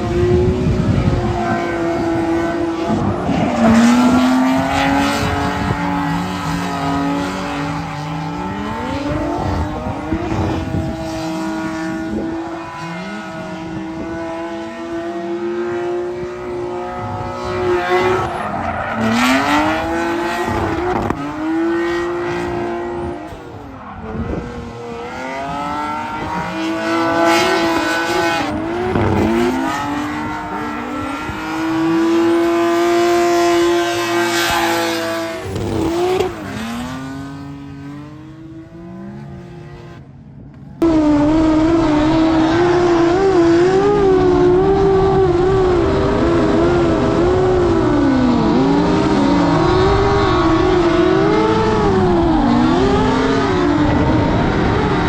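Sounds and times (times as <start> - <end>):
car engine revving hard: 0.0 - 40.0, 40.8 - 55.0
tire squeal: 0.7 - 13.4, 16.8 - 38.0.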